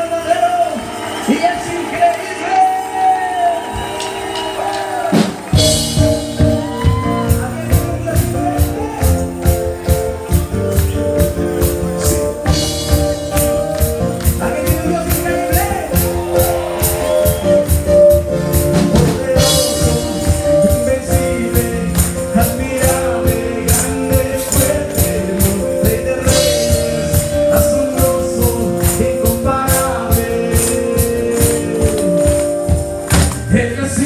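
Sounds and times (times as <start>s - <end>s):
live band playing: 0.0s - 34.0s
people singing: 18.7s - 32.7s.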